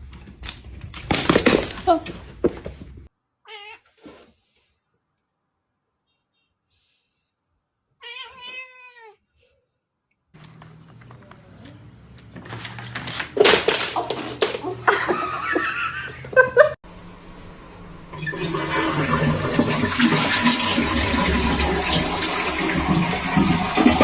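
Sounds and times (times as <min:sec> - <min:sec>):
toilet flushing: 0:14.4 - 0:24.0.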